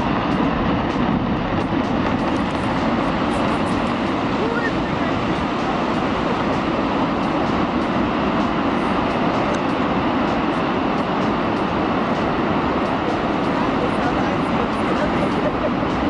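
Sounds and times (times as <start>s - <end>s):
loud rushing noise: 0.0s - 16.0s.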